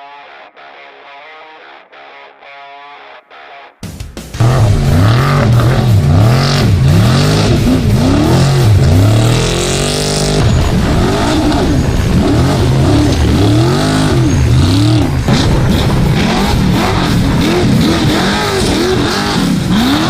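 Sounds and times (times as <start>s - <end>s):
truck engine revving: 4.4s - 20.0s.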